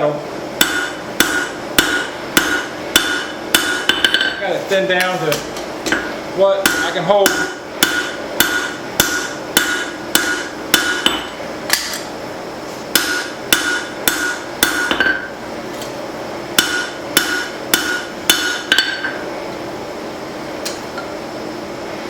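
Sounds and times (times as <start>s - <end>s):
hammer ringing on anvil: 0.6s - 4.4s, 6.0s - 11.9s, 13.0s - 15.3s, 16.6s - 19.2s.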